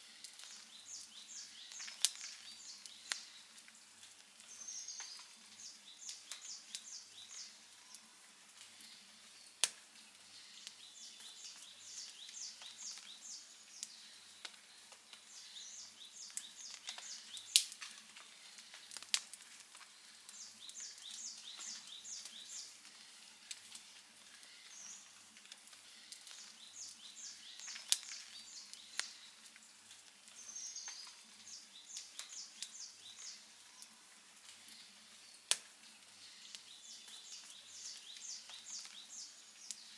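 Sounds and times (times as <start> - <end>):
campfire crackling and hissing: 0.0 - 39.9
sharp fire pops: 1.6 - 3.3, 16.3 - 18.1, 18.7 - 19.8, 27.5 - 29.1.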